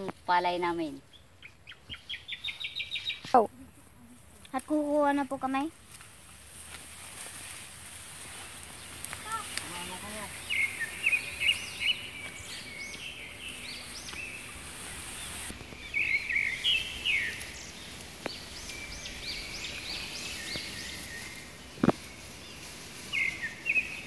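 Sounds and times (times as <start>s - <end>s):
small birds chirping: 0.0s - 5.7s, 8.2s - 24.0s
steady outdoor hiss: 0.0s - 24.0s.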